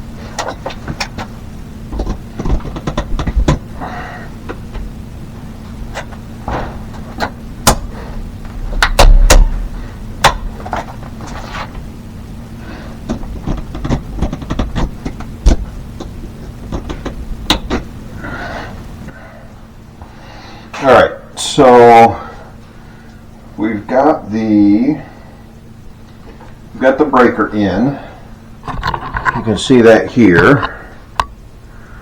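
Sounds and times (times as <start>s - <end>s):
steady low hum: 0.0s - 32.0s
clicks and knocks of hand work: 1.9s - 3.7s, 13.0s - 17.9s.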